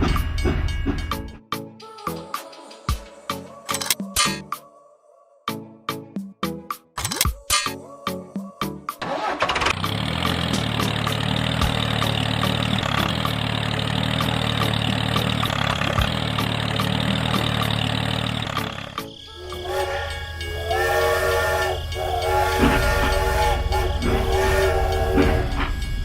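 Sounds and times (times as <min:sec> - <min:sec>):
engine running: 0:09.0 - 0:26.0
multi-tone horn blasts: 0:11.0 - 0:26.0.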